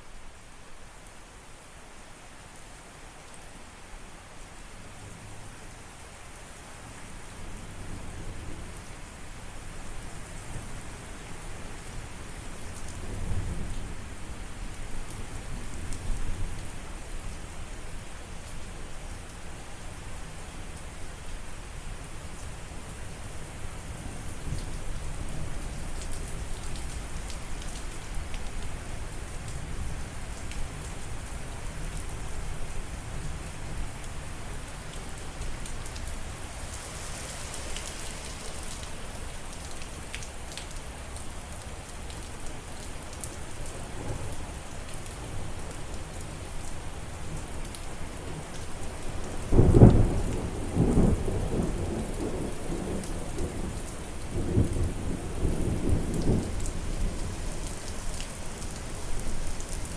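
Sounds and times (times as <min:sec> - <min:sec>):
steady rain falling: 0:00.0 - 0:59.9
thunder clap and rumble: 0:54.4 - 0:57.2.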